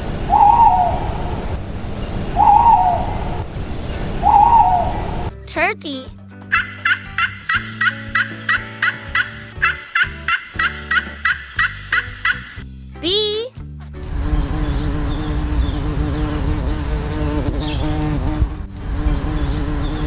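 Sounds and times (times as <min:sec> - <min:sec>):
owl hooting: 0:00.0 - 0:05.3
turkey gobbling: 0:00.2 - 0:01.6, 0:02.2 - 0:05.3, 0:06.5 - 0:12.6.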